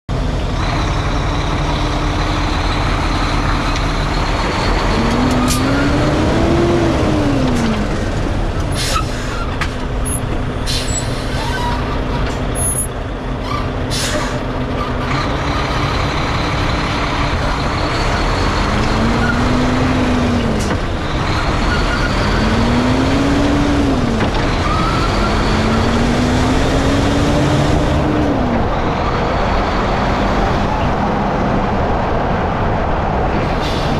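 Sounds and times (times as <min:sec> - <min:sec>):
diesel truck engine running: 0:00.1 - 0:33.9.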